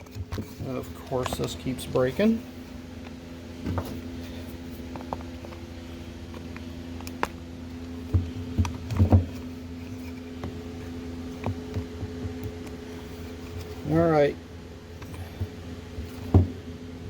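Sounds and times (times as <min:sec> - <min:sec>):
knocks and clunks of handling: 0:00.0 - 0:01.7, 0:03.0 - 0:05.6, 0:06.3 - 0:13.8, 0:15.0 - 0:16.6
steady mechanical hum: 0:00.0 - 0:17.0.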